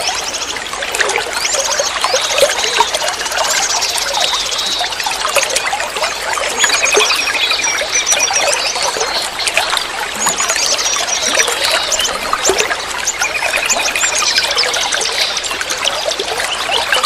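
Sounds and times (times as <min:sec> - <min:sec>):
water trickling and splashing: 0:00.0 - 0:17.0
small birds chirping: 0:06.5 - 0:17.0.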